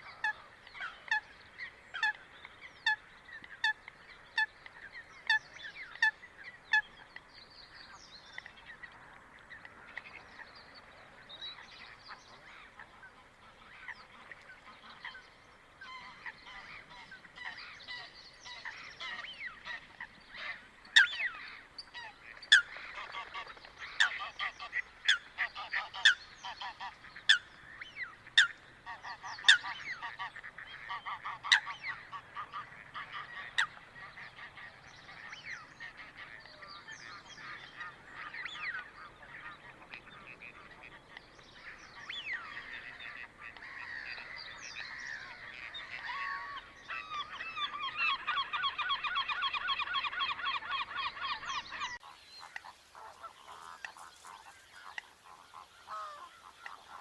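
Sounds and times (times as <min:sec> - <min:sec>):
chorus of bird calls: 0:00.0 - 0:57.0
coots calling: 0:41.7 - 0:57.0.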